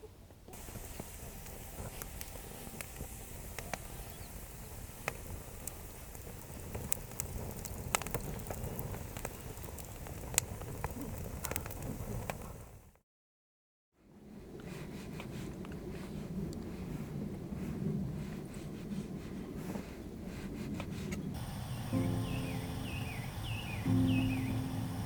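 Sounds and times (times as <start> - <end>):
low fire rumble: 0.3 - 12.9, 14.1 - 25.0
campfire crackling and popping: 0.5 - 12.9, 21.4 - 25.0.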